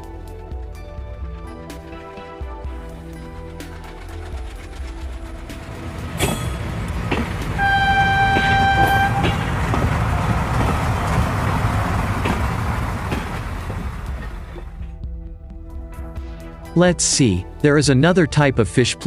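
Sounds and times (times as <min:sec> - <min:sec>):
train rumbling: 0:02.6 - 0:15.2
wheels clacking over rail joints: 0:03.3 - 0:14.9
train horn: 0:07.4 - 0:10.8.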